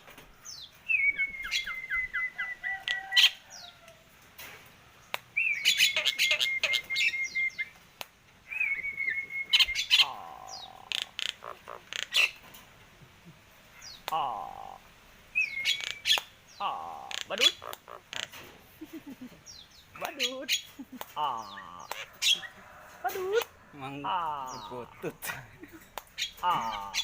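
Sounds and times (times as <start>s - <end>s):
myna whistled trills: 0.9s - 3.1s, 5.4s - 7.7s, 8.5s - 10.1s
bird clicks and squawks: 9.6s - 12.5s, 15.5s - 18.6s, 20.0s - 23.6s.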